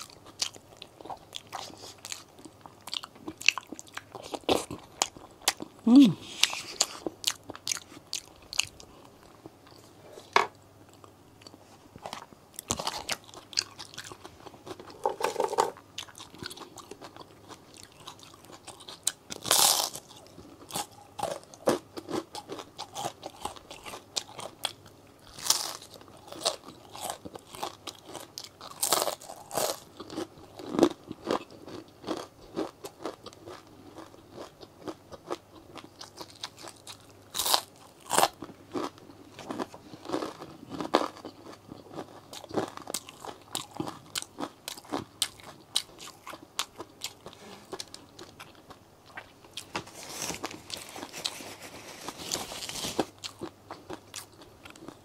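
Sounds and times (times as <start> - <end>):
person crunching and chewing food: 0.0 - 55.0.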